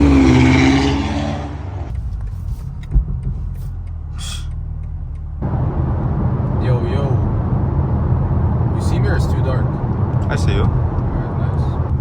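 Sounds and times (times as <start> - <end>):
car engine droning: 0.0 - 12.0
short thump: 1.9 - 4.5.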